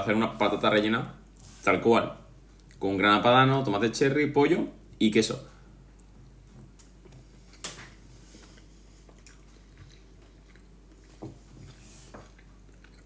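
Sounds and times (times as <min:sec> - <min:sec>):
person chewing food: 0:05.9 - 0:13.0.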